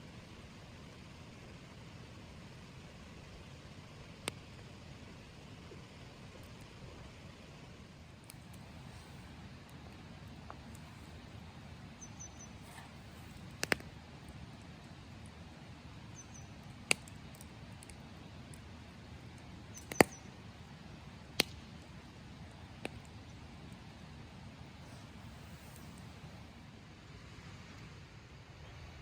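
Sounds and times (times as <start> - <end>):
low steady hiss: 0.0 - 29.0
campfire wood popping: 1.7 - 26.6
faint high bird chirps: 10.7 - 13.5, 16.1 - 16.7, 19.7 - 20.4.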